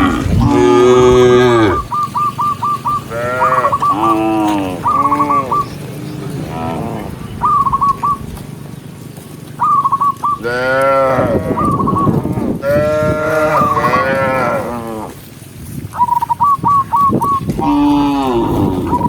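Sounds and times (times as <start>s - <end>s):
cattle mooing: 0.0s - 2.0s, 2.9s - 7.3s, 10.4s - 15.3s, 17.5s - 19.0s.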